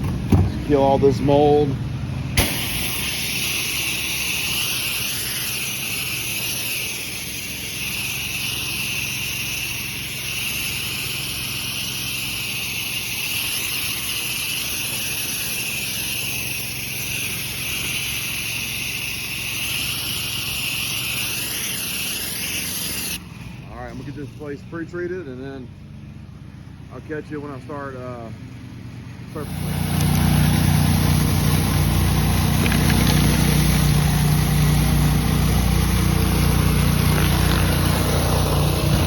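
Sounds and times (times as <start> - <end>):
washer engine running: 0.0 - 24.7, 28.7 - 39.0
pressure washer spray hissing: 2.4 - 23.2, 29.4 - 39.0.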